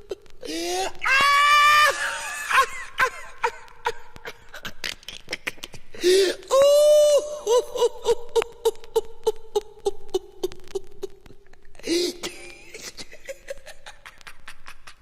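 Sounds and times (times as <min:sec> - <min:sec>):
shrill whoop: 0:00.8 - 0:03.1
high-pitched voice laughing: 0:07.4 - 0:15.0.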